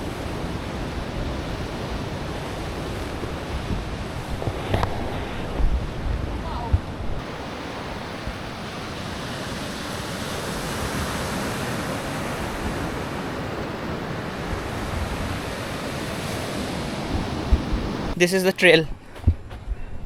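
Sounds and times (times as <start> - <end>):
wind on microphone: 0.0 - 18.2, 18.8 - 20.0
ocean surf washing onto beach: 0.0 - 18.8.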